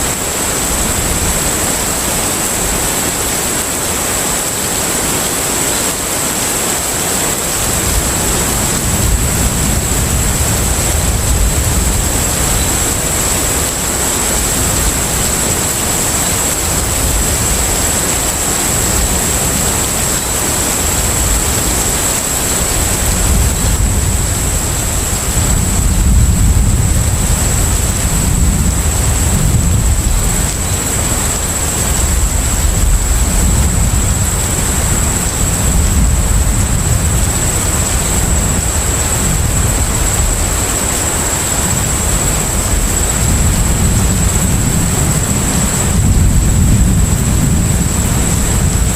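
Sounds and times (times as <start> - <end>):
rushing water: 0.0 - 48.9.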